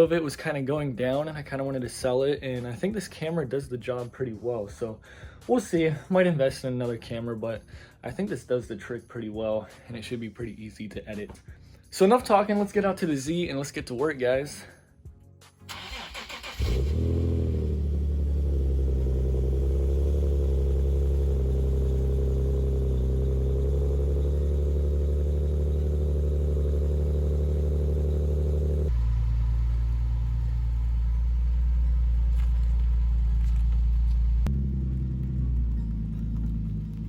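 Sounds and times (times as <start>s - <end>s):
car engine starting and idling: 15.7s - 37.0s.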